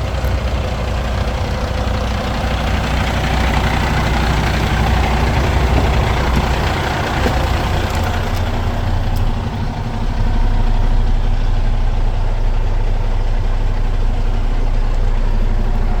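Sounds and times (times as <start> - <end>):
diesel truck idling: 0.0 - 16.0.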